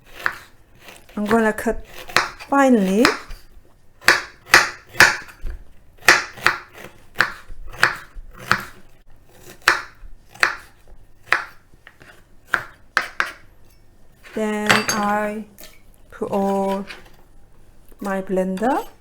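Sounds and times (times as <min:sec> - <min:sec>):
knife chopping ginger: 0:00.0 - 0:13.5.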